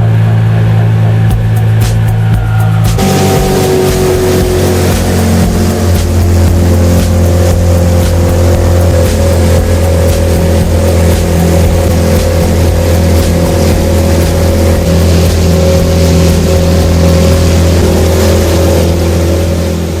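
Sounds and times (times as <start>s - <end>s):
outboard motor droning: 0.0s - 20.0s
water noise: 0.0s - 20.0s.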